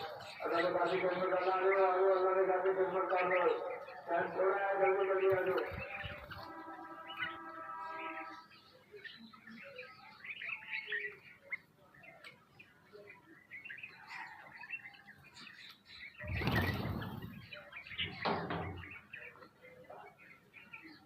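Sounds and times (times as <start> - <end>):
small birds chirping: 0.0 - 21.0
wings flapping: 16.2 - 18.5.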